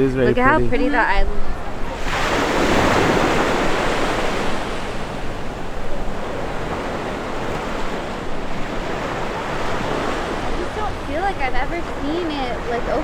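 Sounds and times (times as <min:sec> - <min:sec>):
ocean surf washing onto beach: 0:00.0 - 0:13.0
wind rumbling on microphone: 0:00.0 - 0:13.0.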